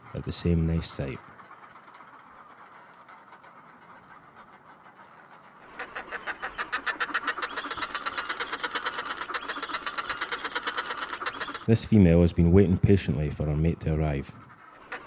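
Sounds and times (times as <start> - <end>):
faint steady hiss: 0.0 - 8.9
seabird cackling: 0.0 - 11.7, 14.1 - 15.0.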